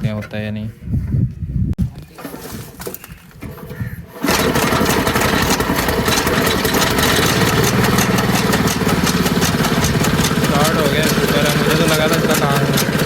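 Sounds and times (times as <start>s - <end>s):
small engine running: 4.2s - 13.0s.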